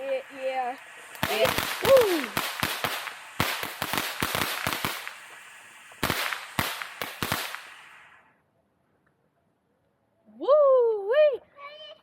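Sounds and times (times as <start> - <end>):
fireworks bangs and crackling: 0.0 - 8.3.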